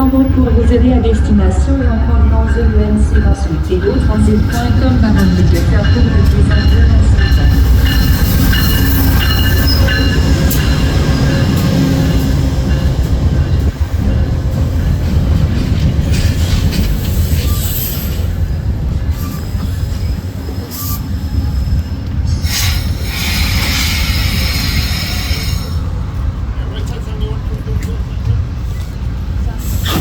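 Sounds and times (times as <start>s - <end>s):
train wheels rumbling: 0.0s - 30.0s
wheel brake squeal: 19.1s - 21.7s.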